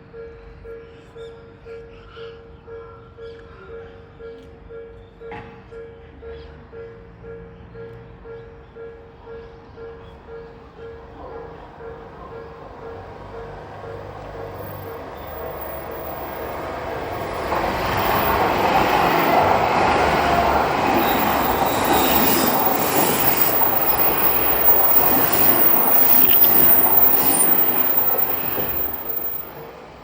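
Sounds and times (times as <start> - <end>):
train rumble and rail noise: 8.0 - 30.0
crossing bell dinging: 12.8 - 29.9.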